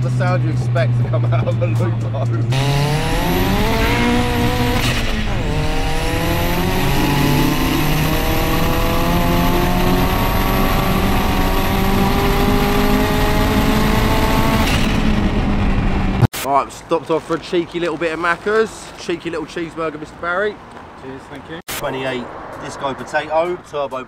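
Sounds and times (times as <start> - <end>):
car engine accelerating hard: 0.0 - 16.3.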